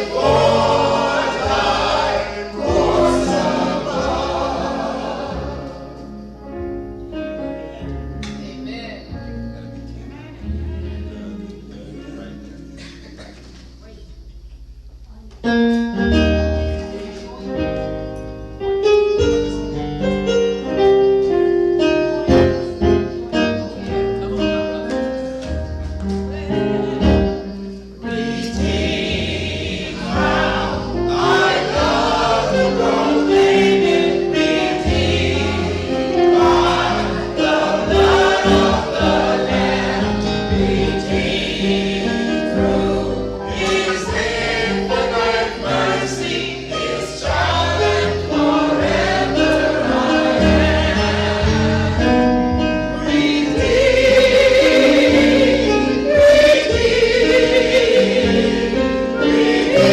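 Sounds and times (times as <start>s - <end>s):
choir singing: 0.0s - 6.5s, 26.8s - 59.9s
instrumental gospel accompaniment: 0.0s - 59.9s.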